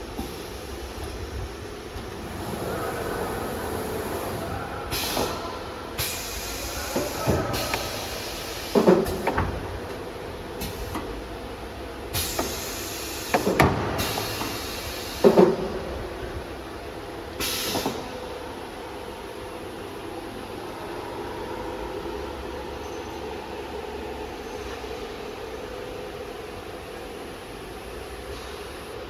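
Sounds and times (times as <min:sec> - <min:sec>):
machine clunks and knocks: 0:08.8 - 0:09.9, 0:13.3 - 0:14.6
compressed-air hiss: 0:12.1 - 0:15.4.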